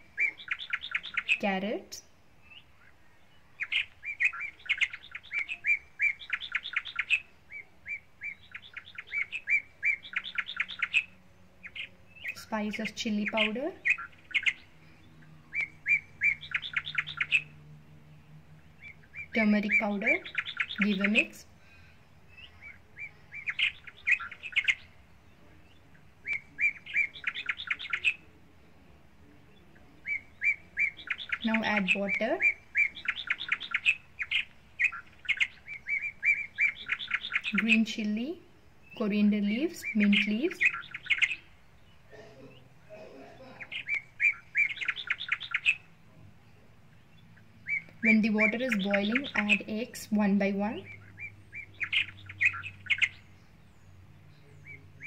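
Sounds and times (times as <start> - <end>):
small bird chirping: 0.0 - 55.0.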